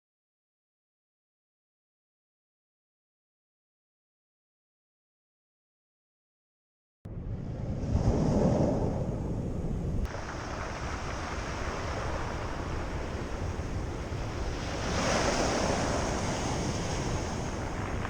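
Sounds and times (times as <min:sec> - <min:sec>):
wind rumbling on microphone: 0:07.1 - 0:18.0
sea waves washing onto shore: 0:07.9 - 0:18.0.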